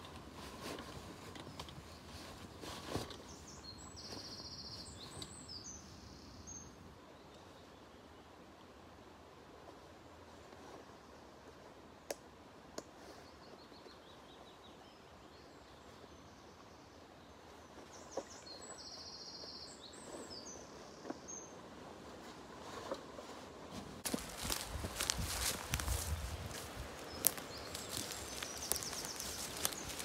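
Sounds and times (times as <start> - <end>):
background hiss: 0.0 - 30.0
birds chirping: 24.1 - 30.0.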